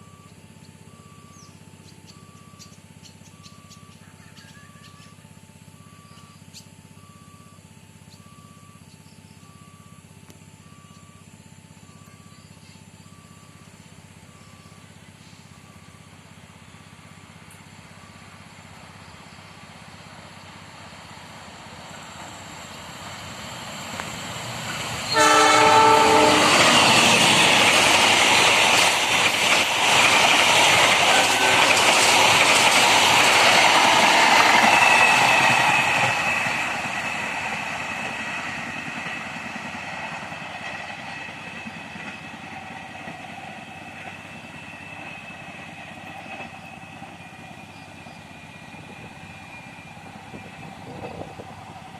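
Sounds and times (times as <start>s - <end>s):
train rumbling and wheel clatter: 1.3s - 6.7s, 13.6s - 51.9s
train horn blast: 25.1s - 27.5s, 30.9s - 32.1s.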